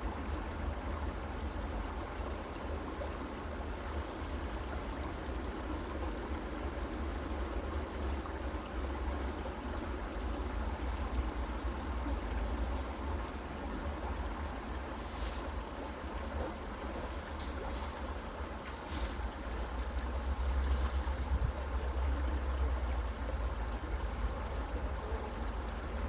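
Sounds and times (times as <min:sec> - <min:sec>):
stream rushing: 0:02.4 - 0:07.2, 0:09.8 - 0:23.1.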